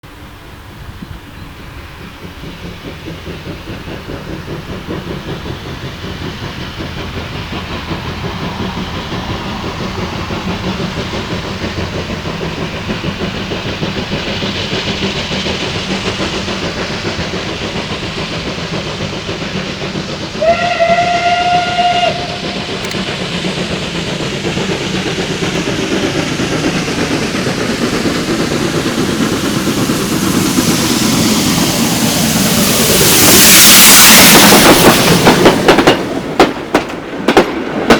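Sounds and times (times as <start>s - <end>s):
steam locomotive running: 0.0s - 37.9s
steam whistle: 20.4s - 23.0s.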